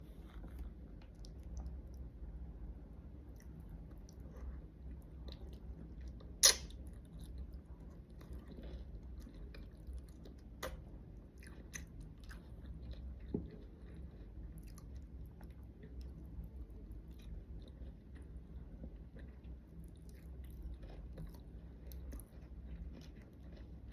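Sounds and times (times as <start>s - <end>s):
person chewing food: 0.0s - 2.2s, 3.2s - 23.9s.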